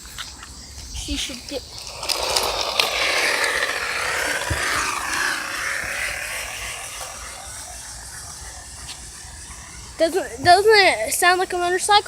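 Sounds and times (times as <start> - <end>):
air rushing out with buzzing hiss: 1.5 - 8.4.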